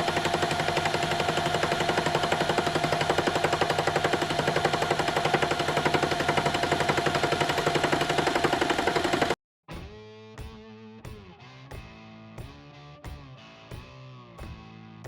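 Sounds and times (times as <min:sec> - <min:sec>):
lathe running: 0:00.0 - 0:09.4
lathe tool clattering on metal: 0:00.0 - 0:09.4.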